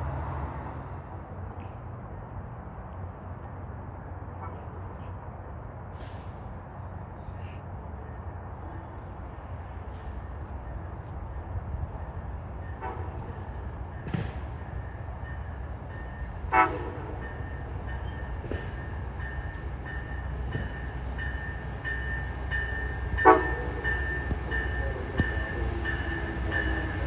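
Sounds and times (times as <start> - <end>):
passenger train rumbling: 0.0 - 27.0
low train horn tones: 12.7 - 13.5, 16.4 - 17.6, 22.0 - 27.0.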